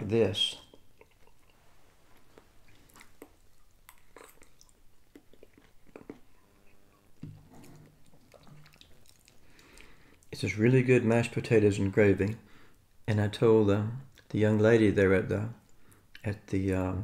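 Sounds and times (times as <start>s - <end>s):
man chewing: 0.5s - 10.3s.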